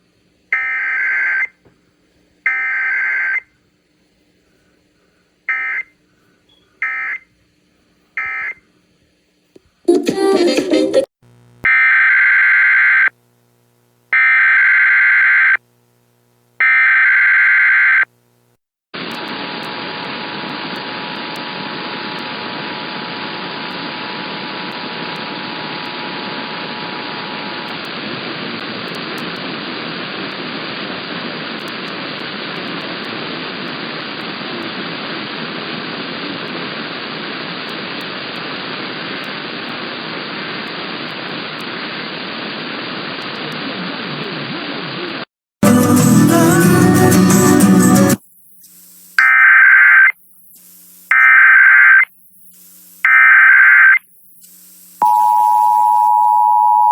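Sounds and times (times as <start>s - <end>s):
heavy radio static: 11.3s - 15.6s, 19.0s - 45.3s, 47.9s - 55.0s
digital data tone bursts: 47.0s - 56.9s
faint two-tone attention signal: 55.0s - 56.9s.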